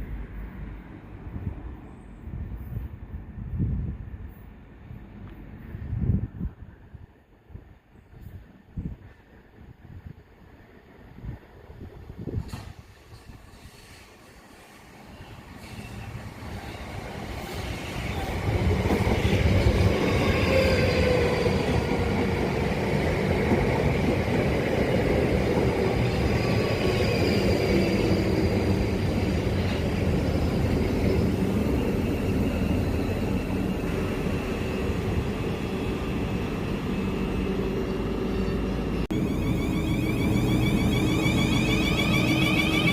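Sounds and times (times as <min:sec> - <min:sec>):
electric train running: 0:18.3 - 0:42.9
whining tones: 0:31.6 - 0:42.9.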